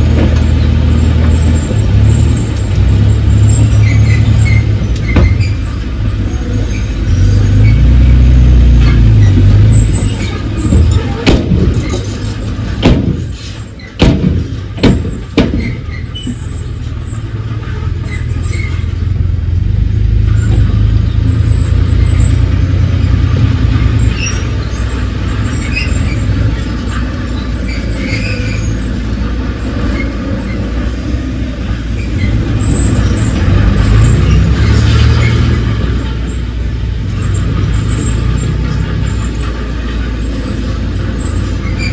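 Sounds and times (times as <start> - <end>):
diesel machine rumbling: 0.0 - 41.9
sharp metal clanks: 9.7 - 17.1.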